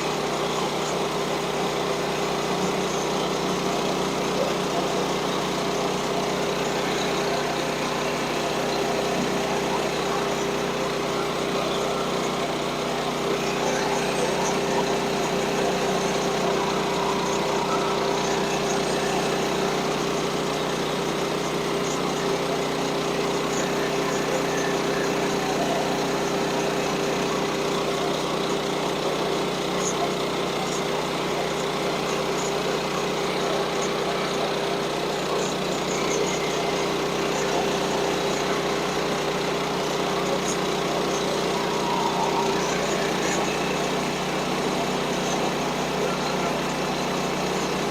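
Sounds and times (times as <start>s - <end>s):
small engine running steadily: 0.0s - 47.9s.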